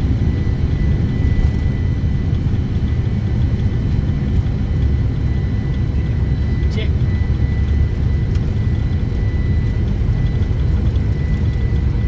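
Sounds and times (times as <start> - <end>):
aircraft cockpit engine rumble: 0.0 - 12.0.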